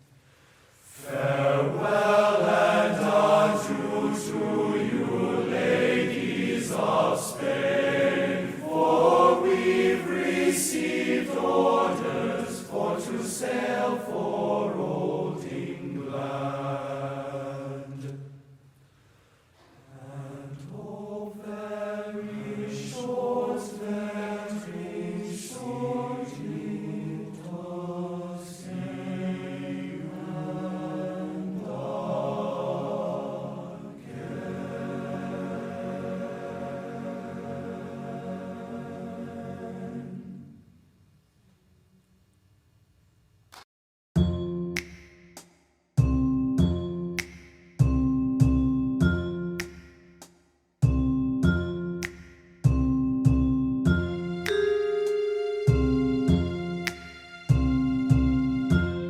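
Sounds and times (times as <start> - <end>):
group of voices chanting: 1.0 - 18.2.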